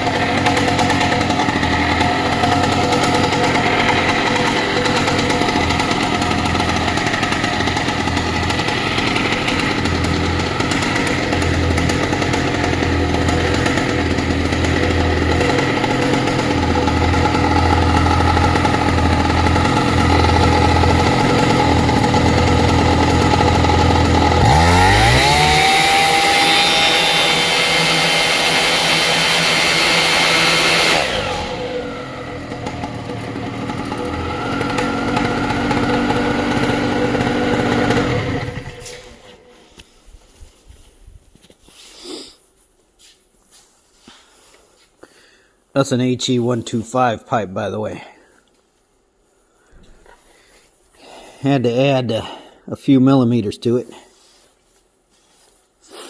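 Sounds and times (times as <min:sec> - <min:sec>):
paramotor engine revving: 0:00.0 - 0:39.8.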